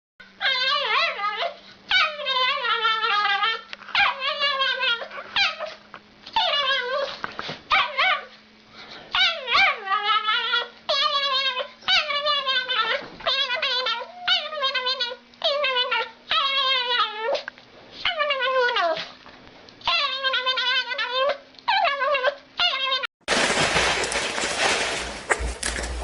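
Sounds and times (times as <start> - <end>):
animal high wavering cries: 9.1 - 17.4.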